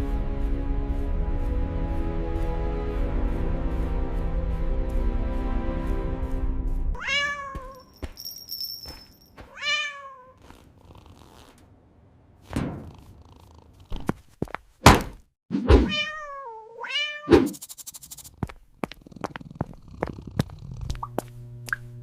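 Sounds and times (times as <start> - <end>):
cat meowing: 7.0 - 7.8, 9.5 - 10.4, 15.8 - 17.4
sharp thumps: 12.4 - 13.3.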